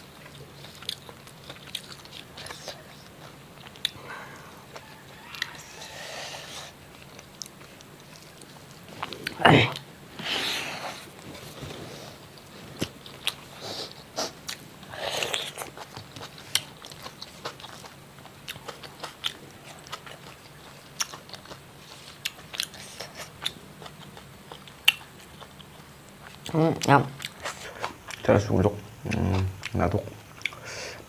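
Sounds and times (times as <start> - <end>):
person biting and chewing: 3.2 - 4.0.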